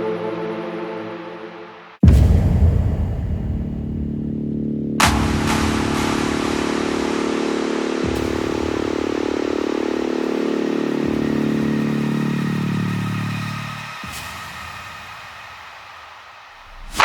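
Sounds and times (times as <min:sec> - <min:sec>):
sharp hit: 0:05.0 - 0:11.6.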